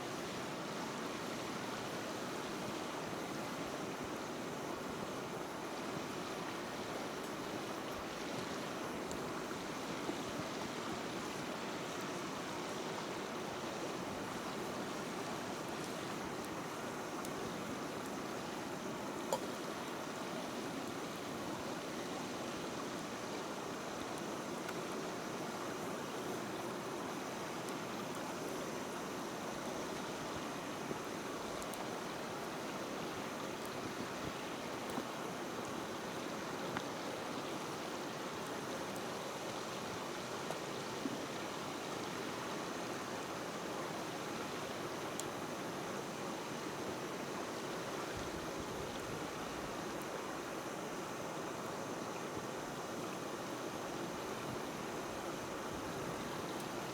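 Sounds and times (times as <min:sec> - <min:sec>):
wood fire hissing: 0:10.5 - 0:21.3.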